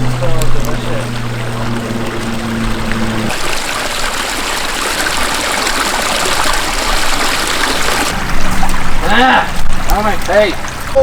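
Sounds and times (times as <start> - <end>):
low hum: 0.0 - 9.9
stream water rushing: 0.0 - 11.0.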